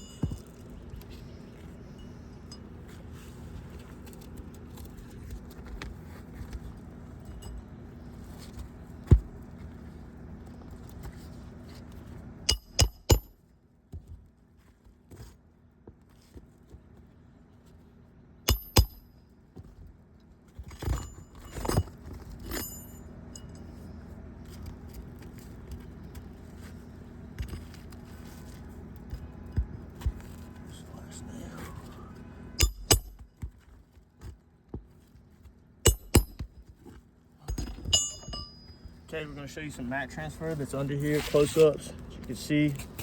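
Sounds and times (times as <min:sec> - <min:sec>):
metal hand tools clinking: 0:37.4 - 0:38.8.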